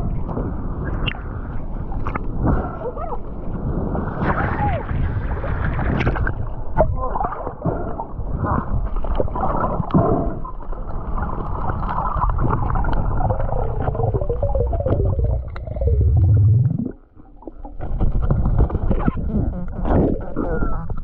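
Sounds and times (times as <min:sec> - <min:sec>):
low underwater rumble: 0:05.1 - 0:21.0
muffled underwater gurgling: 0:05.9 - 0:21.0.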